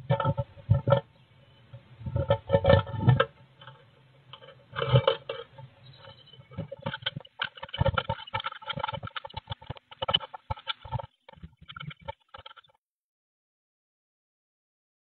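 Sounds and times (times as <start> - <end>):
small taps and scratches: 1.7 - 12.8
claws scrabbling on wood: 2.2 - 12.7.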